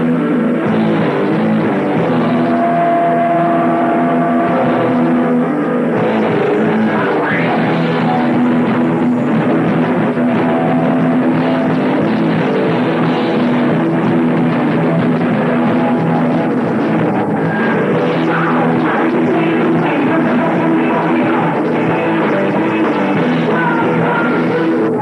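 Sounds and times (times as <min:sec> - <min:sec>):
pounding drum kit: 0:00.0 - 0:24.9
bass: 0:00.0 - 0:25.0
distorted electric guitars: 0:00.0 - 0:25.0.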